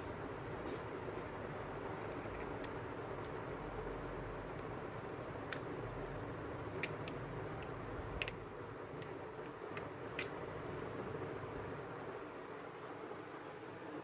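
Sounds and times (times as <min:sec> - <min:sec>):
steady low hiss: 0:00.0 - 0:14.0
light sharp clicks and ticks: 0:06.8 - 0:11.0.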